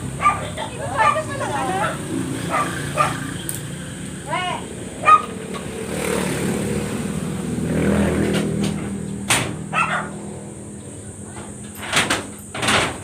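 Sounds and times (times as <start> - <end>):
vehicle engine running: 0.0 - 12.6
dog yelping: 0.1 - 3.4, 4.4 - 5.4, 9.6 - 10.2.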